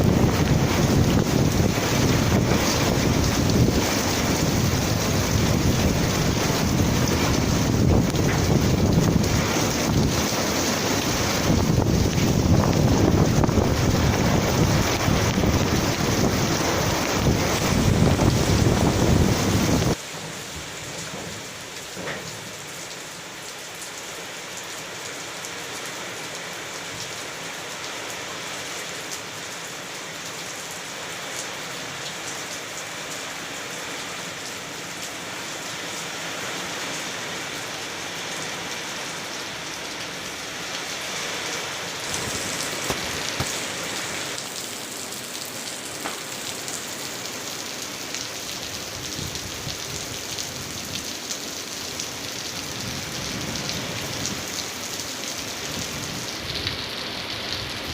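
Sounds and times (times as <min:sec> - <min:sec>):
wind buffeting microphone: 0:00.0 - 0:10.4, 0:11.2 - 0:20.0
heavy rain hissing: 0:00.0 - 0:57.9.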